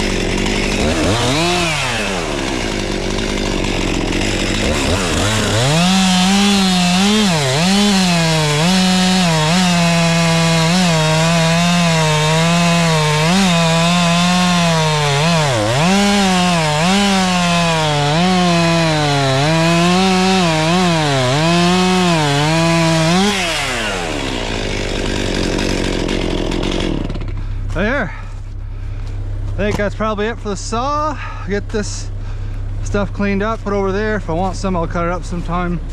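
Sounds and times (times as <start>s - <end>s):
chainsaw cutting wood: 0.0s - 28.3s
chainsaw idling: 0.0s - 35.9s.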